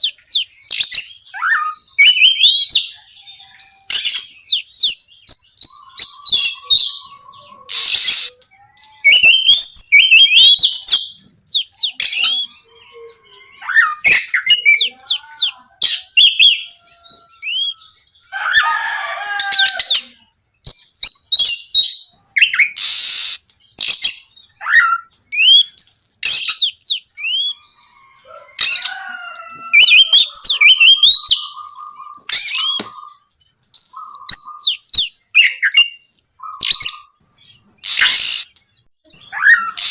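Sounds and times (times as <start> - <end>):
songbird singing: 0.0 - 39.9
harsh rasping bird notes: 5.6 - 8.4, 35.4 - 38.6.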